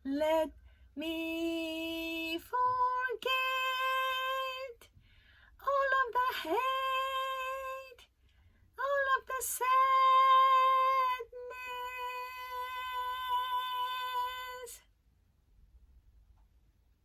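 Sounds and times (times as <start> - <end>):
high voice singing a long note: 8.8 - 14.8.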